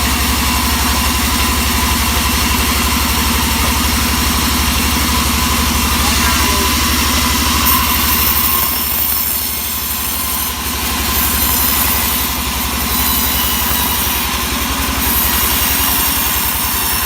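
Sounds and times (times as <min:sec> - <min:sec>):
log saw engine running: 0:00.0 - 0:17.0.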